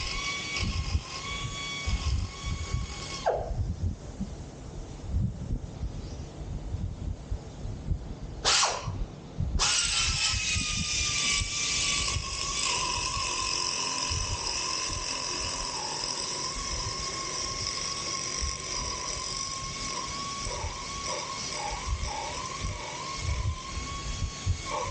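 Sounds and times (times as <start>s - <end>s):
power tool whining and hissing: 0.0s - 3.6s, 8.4s - 9.0s, 9.6s - 24.9s.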